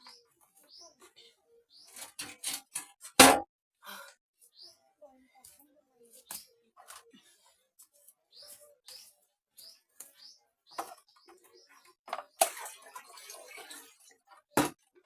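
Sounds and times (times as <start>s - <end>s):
faint bird chirps: 8.0s - 12.0s.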